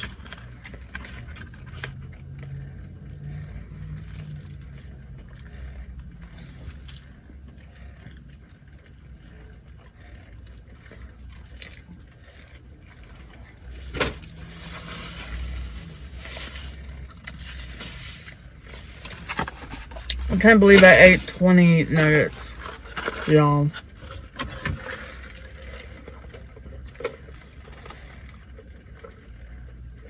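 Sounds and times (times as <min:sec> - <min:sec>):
person chewing food: 0:00.0 - 0:20.3, 0:21.9 - 0:30.0
rustling: 0:11.6 - 0:26.2.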